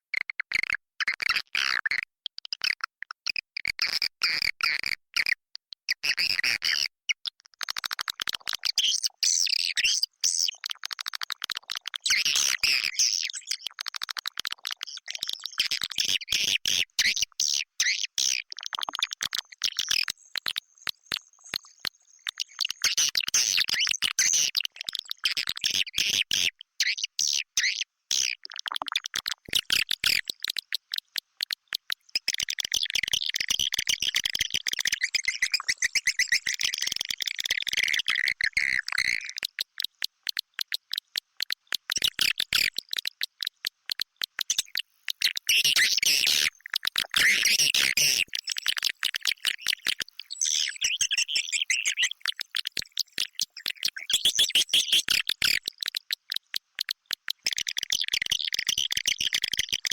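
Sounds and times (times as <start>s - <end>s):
swiftlets twittering and chirping: 19.0s - 25.2s, 32.0s - 39.7s, 41.8s - 56.2s.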